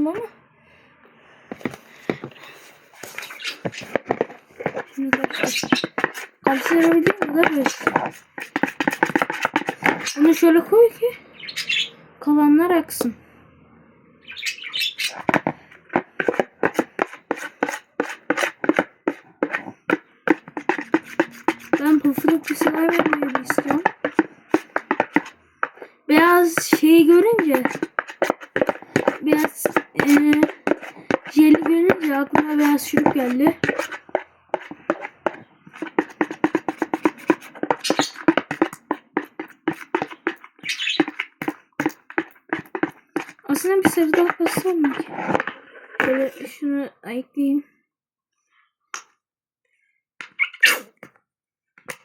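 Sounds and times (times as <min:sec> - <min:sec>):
slime stirred with sharp clacks: 0:01.5 - 0:10.9, 0:14.9 - 0:46.6, 0:51.8 - 0:52.0.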